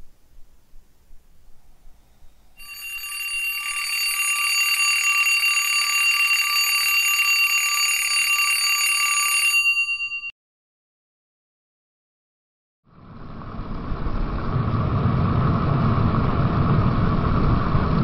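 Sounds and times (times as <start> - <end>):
alarm clock bell ringing: 2.6 - 10.3.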